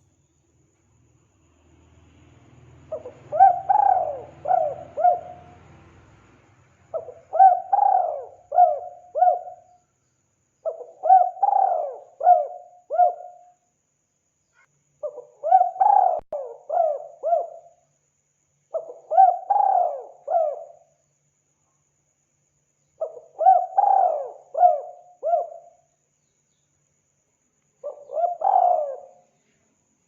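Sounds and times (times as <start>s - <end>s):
dove cooing: 2.9s - 5.6s, 6.9s - 9.7s, 10.6s - 13.4s, 15.0s - 17.7s, 18.7s - 20.8s, 23.0s - 25.7s, 27.8s - 29.2s.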